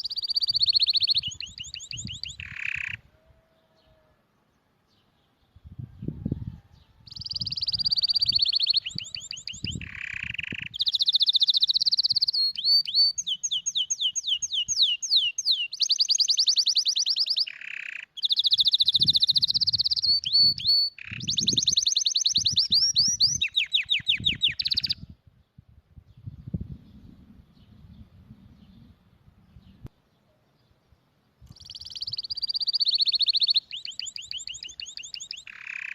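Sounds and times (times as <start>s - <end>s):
canary singing trills: 0.0s - 4.1s, 6.4s - 25.2s, 31.4s - 35.9s.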